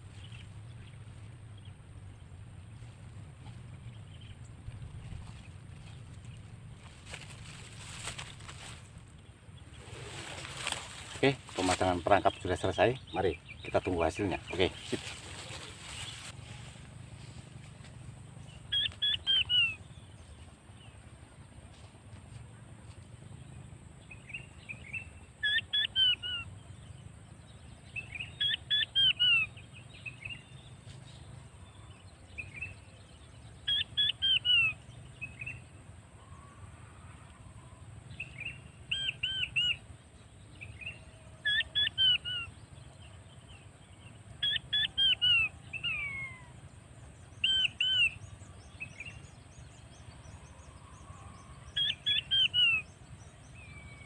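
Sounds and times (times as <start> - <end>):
bird whistling: 18.7 - 19.8, 25.4 - 26.4, 27.9 - 29.5, 33.7 - 35.5, 38.4 - 39.8, 41.4 - 42.5, 44.4 - 46.5, 47.4 - 48.2, 51.4 - 53.0.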